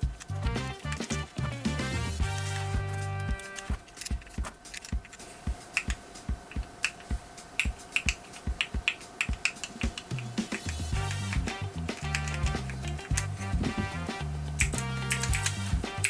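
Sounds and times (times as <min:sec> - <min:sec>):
keyboard switches clicking: 0:02.4 - 0:13.6, 0:14.5 - 0:16.0.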